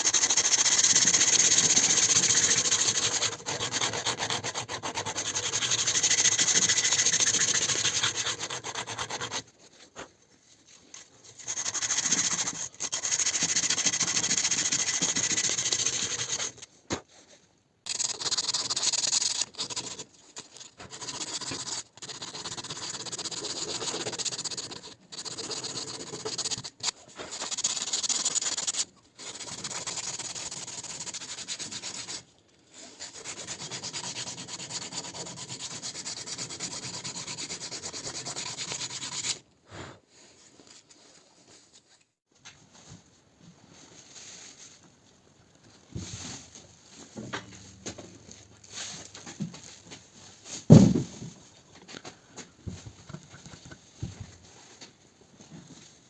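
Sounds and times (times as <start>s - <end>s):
knife being sanded: 0.0s - 9.5s, 11.4s - 16.6s, 17.9s - 32.3s, 32.9s - 39.4s.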